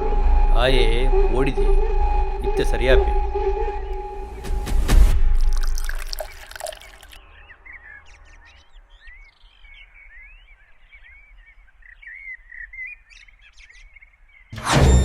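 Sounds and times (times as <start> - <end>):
birds chirping and whistling: 5.9 - 14.6.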